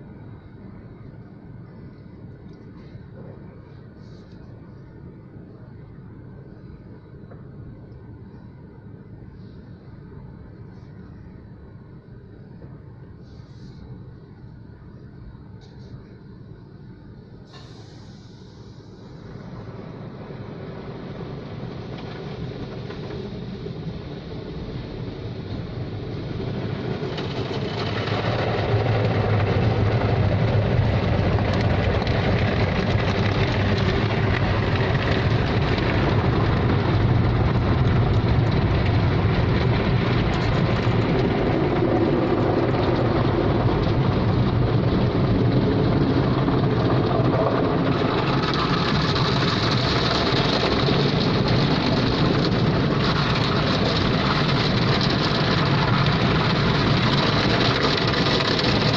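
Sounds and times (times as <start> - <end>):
car wash machinery rushing: 17.5 - 58.9.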